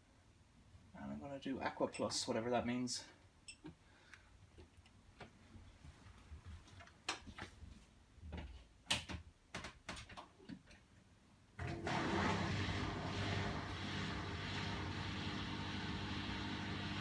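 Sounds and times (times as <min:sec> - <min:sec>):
washing machine rushing hum: 0:11.6 - 0:17.0.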